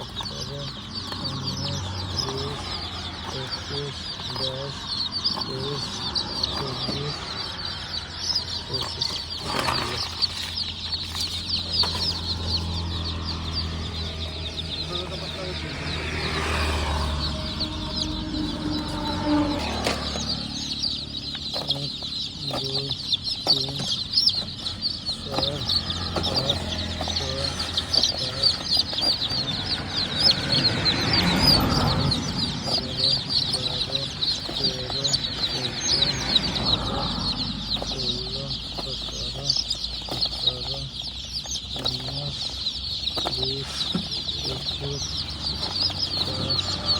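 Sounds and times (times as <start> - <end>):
broad noise: 0.0 - 46.9
chicks peeping: 0.0 - 46.9.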